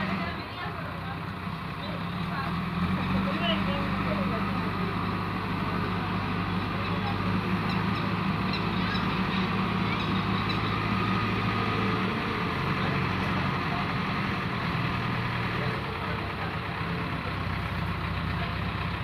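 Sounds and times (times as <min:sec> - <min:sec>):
heavy vehicle engine running: 0:00.0 - 0:19.0.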